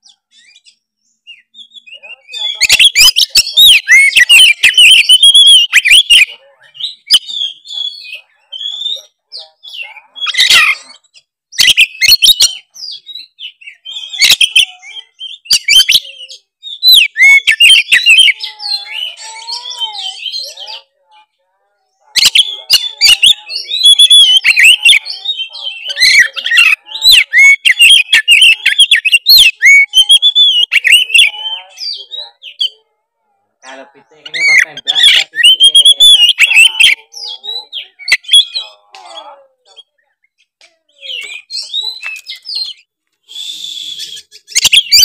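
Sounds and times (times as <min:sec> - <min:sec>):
songbird whistling and clicking: 0:22.2 - 0:25.0, 0:40.3 - 0:45.0.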